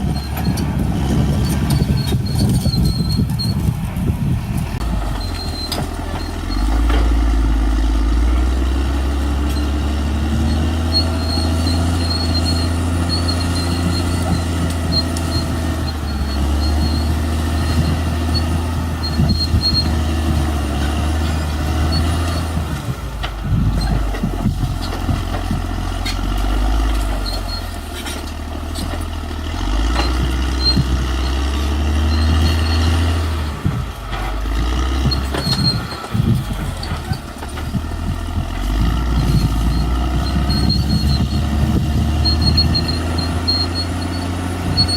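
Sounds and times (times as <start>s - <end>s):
bulldozer diesel engine under load: 0.0s - 44.9s.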